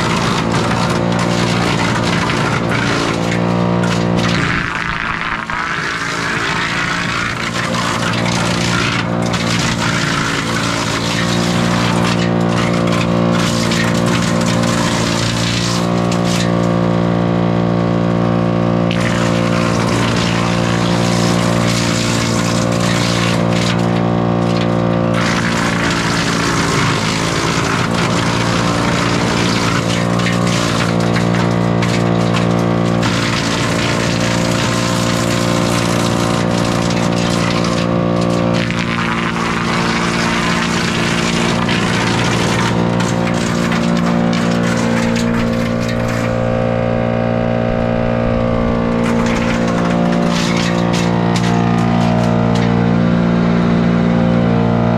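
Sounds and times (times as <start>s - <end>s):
wood being chipped: 0.0s - 17.3s, 18.1s - 52.8s
wood chipper running: 0.0s - 54.9s.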